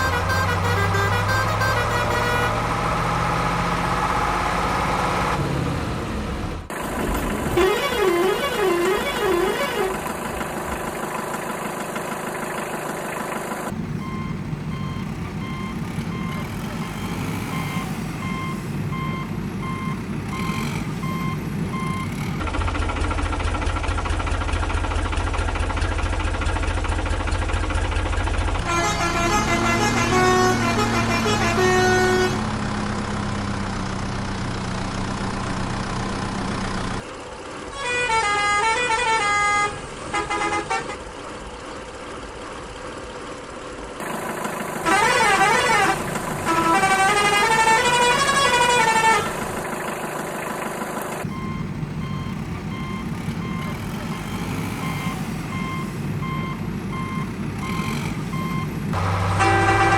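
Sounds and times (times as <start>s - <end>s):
vehicle horn tooting: 0.0s - 3.0s, 7.4s - 10.3s, 28.6s - 32.5s, 37.7s - 41.1s, 44.8s - 49.7s, 51.3s - 59.9s
short horn-like notes: 0.0s - 3.8s, 7.5s - 10.1s, 28.6s - 32.5s, 44.8s - 49.7s, 51.3s - 59.9s
truck reversing beeps: 0.0s - 22.5s, 44.0s - 59.9s
low engine rumble: 0.0s - 38.4s, 41.0s - 59.9s.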